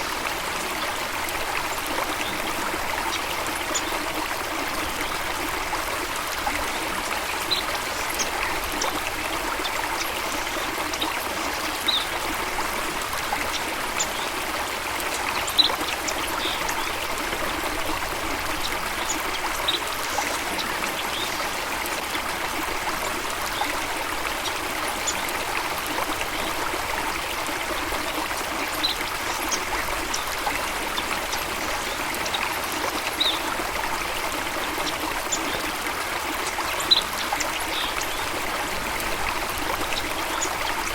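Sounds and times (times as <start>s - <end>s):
stream water running and splashing: 0.0s - 40.9s.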